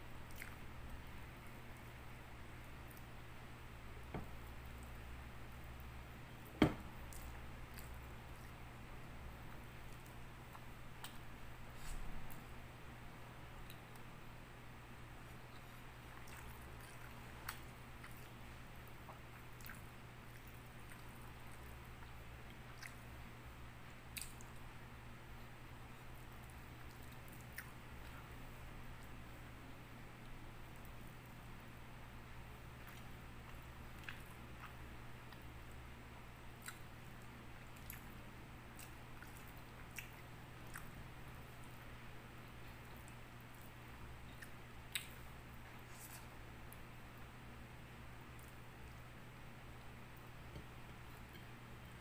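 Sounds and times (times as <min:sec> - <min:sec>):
steady low hum: 0:00.0 - 0:52.0
soft chewing with clicks: 0:00.2 - 0:03.4, 0:04.0 - 0:12.5, 0:13.5 - 0:14.2, 0:15.2 - 0:31.6, 0:32.2 - 0:52.0
wet chewing clicks: 0:00.3 - 0:01.0, 0:42.4 - 0:45.3.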